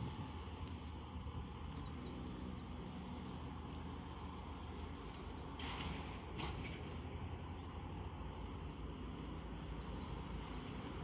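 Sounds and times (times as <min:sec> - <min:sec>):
low outdoor rumble: 0:00.0 - 0:11.0
songbird chirping: 0:00.7 - 0:05.8, 0:09.3 - 0:11.0.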